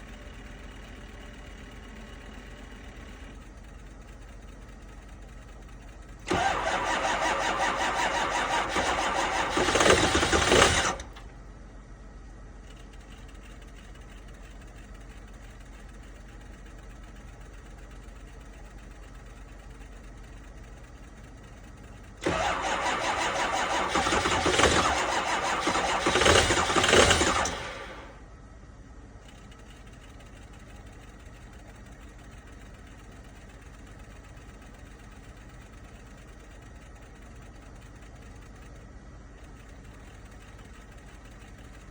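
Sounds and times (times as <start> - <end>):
diesel engine cranking: 6.1 - 11.3, 22.1 - 28.2.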